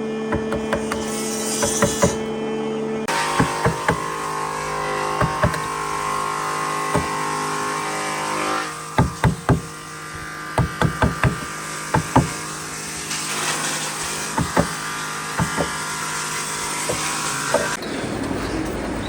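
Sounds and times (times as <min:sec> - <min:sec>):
hammer blows on wood: 0:00.3 - 0:02.3, 0:03.1 - 0:04.3, 0:05.1 - 0:05.9, 0:06.8 - 0:07.4, 0:09.0 - 0:09.8, 0:10.6 - 0:12.5, 0:14.4 - 0:15.9.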